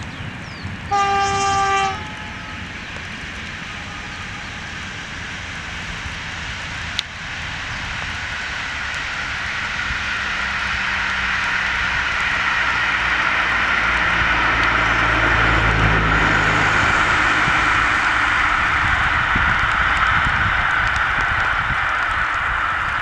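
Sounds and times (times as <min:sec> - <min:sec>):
train wheels rushing on rail: 0:00.0 - 0:23.0
train horn: 0:00.9 - 0:05.6, 0:13.8 - 0:19.4.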